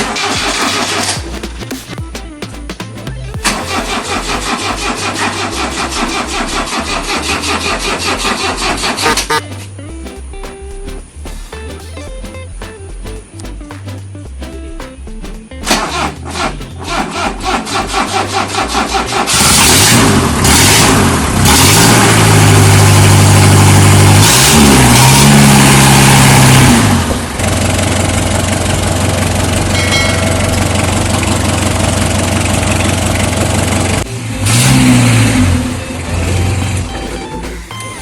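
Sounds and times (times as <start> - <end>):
diesel engine revving and idling: 3.4 - 9.1, 16.3 - 36.9.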